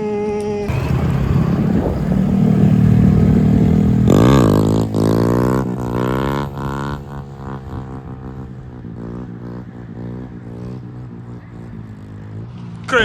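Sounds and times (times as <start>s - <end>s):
car engine accelerating: 0.7s - 13.0s.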